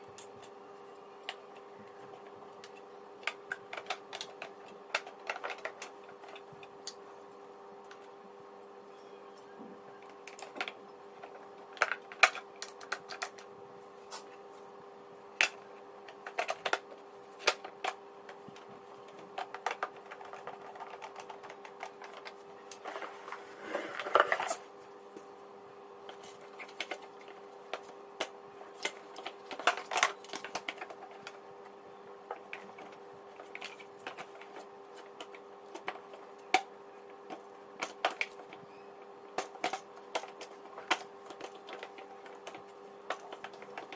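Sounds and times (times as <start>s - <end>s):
faint steady hum: 0.0s - 43.9s
plastic parts clicking and knocking: 2.0s - 7.0s, 10.0s - 13.5s, 15.4s - 24.6s, 26.1s - 31.4s, 32.3s - 38.6s, 39.4s - 43.9s
scraping rustle: 22.8s - 24.8s.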